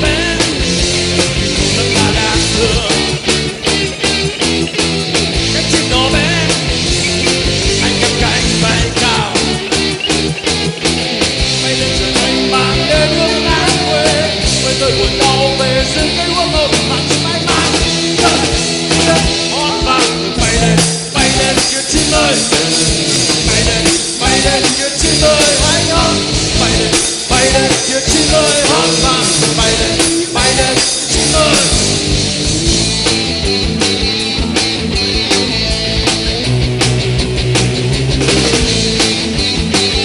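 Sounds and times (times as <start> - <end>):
drum kit: 0.0 - 40.0
electric guitars: 0.0 - 40.0
sliding lead melody: 0.0 - 40.0.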